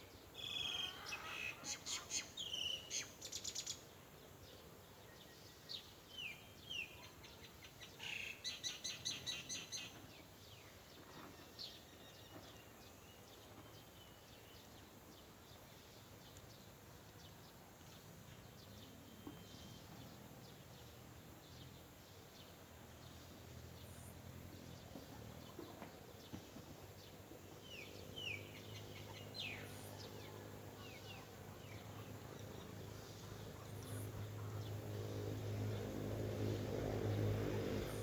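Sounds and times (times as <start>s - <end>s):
outdoor background noise: 0.0s - 38.0s
faint bird chirps: 18.4s - 20.2s.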